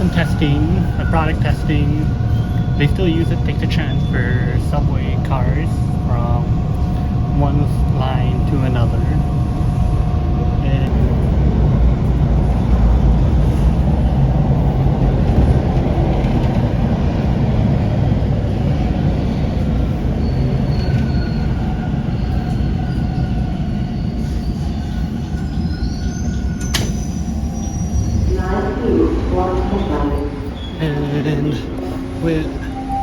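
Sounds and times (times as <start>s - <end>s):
high wheel squeal: 0.0s - 4.7s, 20.2s - 28.4s
subway train rumble: 0.0s - 33.0s.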